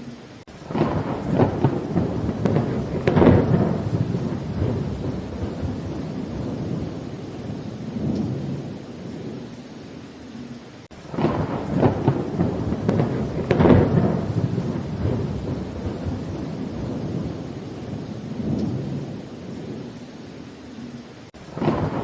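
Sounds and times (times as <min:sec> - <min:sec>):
rain: 0:00.0 - 0:22.0
crackling thunderclap: 0:00.5 - 0:09.5, 0:10.9 - 0:20.0, 0:21.3 - 0:22.0
low rolling thunder: 0:00.5 - 0:09.6, 0:10.9 - 0:20.1, 0:21.3 - 0:22.0.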